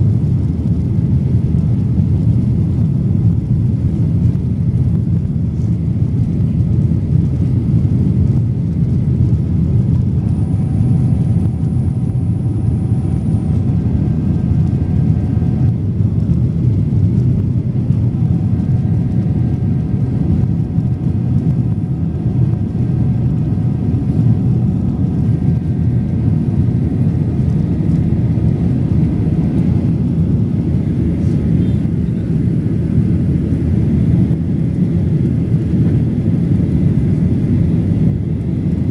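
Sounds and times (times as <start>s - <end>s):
airplane cabin rumble: 0.0s - 38.9s
faint high whine: 10.0s - 16.0s, 31.0s - 32.3s.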